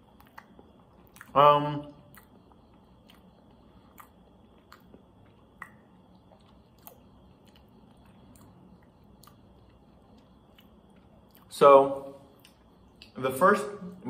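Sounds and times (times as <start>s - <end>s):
chewing soft bread: 0.0s - 13.2s
mouth clicks: 0.2s - 1.5s, 2.1s - 11.5s.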